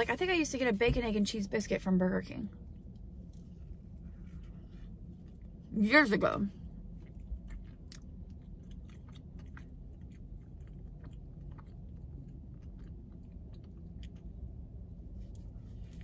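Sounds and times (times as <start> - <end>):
faint low hum: 0.0 - 16.0
chewing with mouth clicks: 2.7 - 5.7, 6.5 - 16.0.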